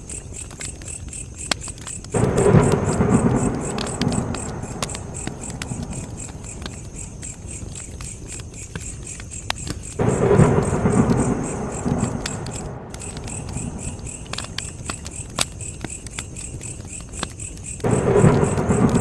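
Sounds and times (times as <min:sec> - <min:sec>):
crickets chirping: 0:00.0 - 0:19.0
wood fire crackling: 0:00.0 - 0:19.0
low rumble: 0:02.2 - 0:07.3, 0:10.0 - 0:14.8, 0:17.9 - 0:19.0.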